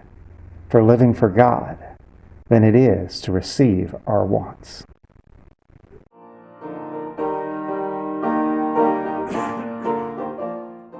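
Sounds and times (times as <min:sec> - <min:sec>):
slow piano chords: 0:06.2 - 0:10.9.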